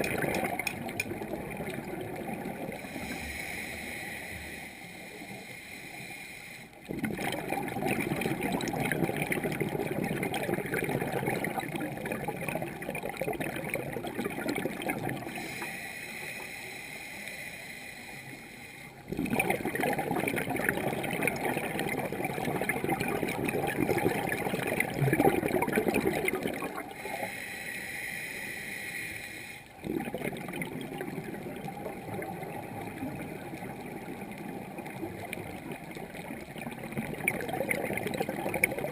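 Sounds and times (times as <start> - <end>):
diver exhaling bubbles underwater: 0.0 - 3.5, 6.8 - 15.6, 19.1 - 27.2, 29.8 - 38.9.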